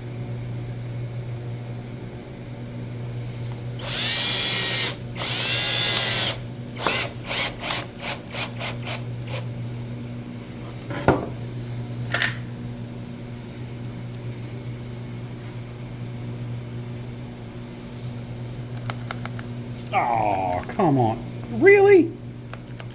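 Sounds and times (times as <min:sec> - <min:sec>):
steady low hum: 0:19.5 - 0:22.5.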